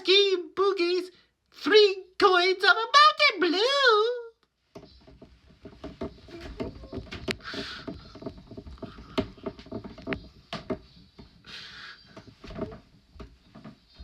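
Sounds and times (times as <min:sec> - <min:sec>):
cartoon knocks and clatters: 0:04.8 - 0:11.3.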